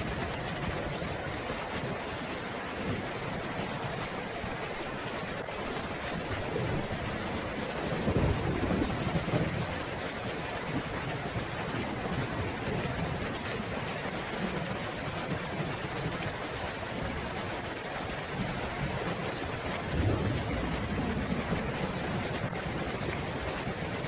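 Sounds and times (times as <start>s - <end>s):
steady rain falling: 0.0s - 24.0s
thunder rolling: 6.6s - 9.8s, 19.8s - 23.6s.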